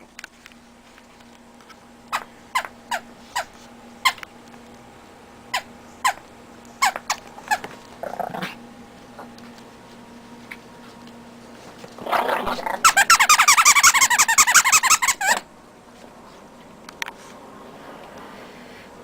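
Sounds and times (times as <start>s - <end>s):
rubber toy squeaking: 12.8s - 15.4s.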